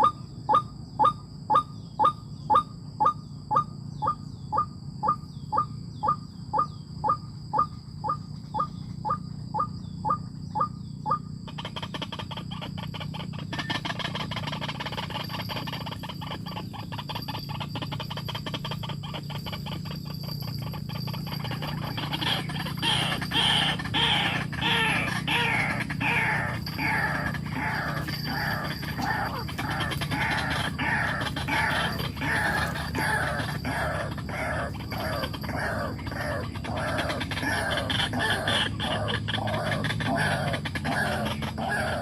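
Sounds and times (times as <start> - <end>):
bird calling harshly: 0.0 - 42.0
steady low hum: 0.0 - 42.0.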